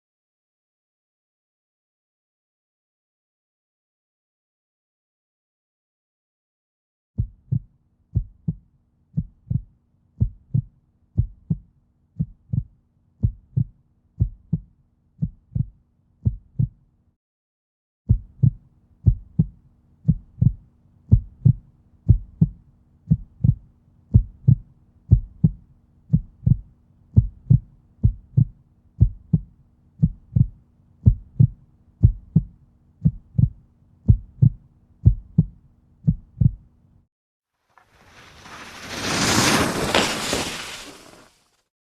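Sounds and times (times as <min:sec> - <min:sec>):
steady sharp low thumps: 0:09.2 - 0:16.8, 0:18.1 - 0:36.7.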